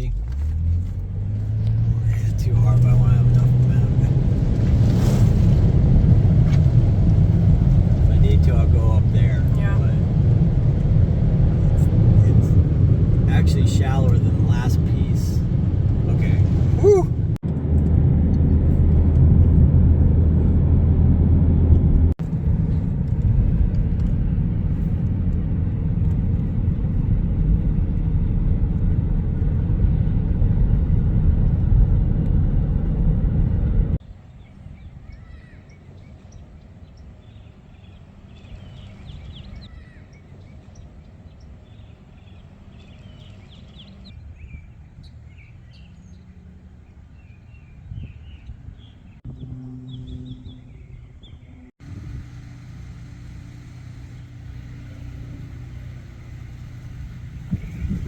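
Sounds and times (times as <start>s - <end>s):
vehicle rumble: 0.0s - 58.0s
birds chirping: 1.0s - 4.4s, 6.2s - 17.4s, 34.1s - 51.8s.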